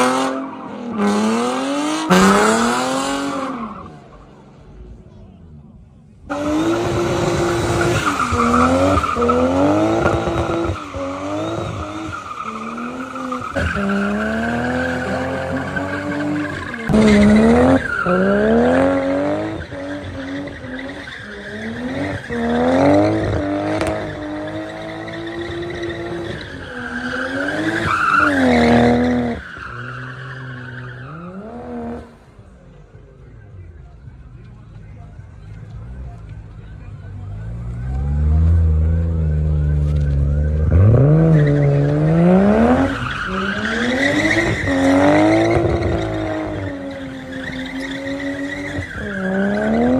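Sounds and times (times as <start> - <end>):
car engine revving: 0.0 - 5.1, 6.3 - 32.4, 34.6 - 49.9
tyre squeal: 6.3 - 31.6, 38.4 - 49.9.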